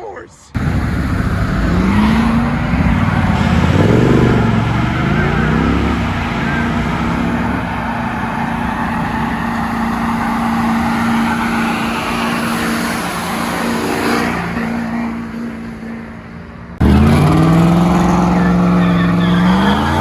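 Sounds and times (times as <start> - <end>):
engine revving up: 0.5 - 15.6, 16.8 - 20.0
car engine at high revs: 0.5 - 20.0
rushing noise: 0.6 - 15.3.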